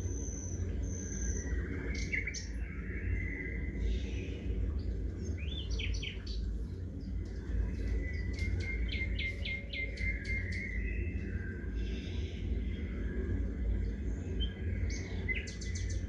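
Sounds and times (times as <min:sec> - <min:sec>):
low background noise: 0:00.0 - 0:16.0
songbirds chirping: 0:00.0 - 0:16.0.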